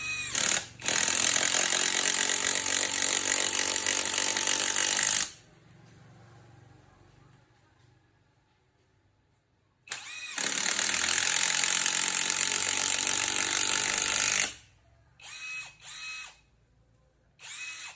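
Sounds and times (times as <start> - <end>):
impact driver motor whining: 17.4 - 17.9.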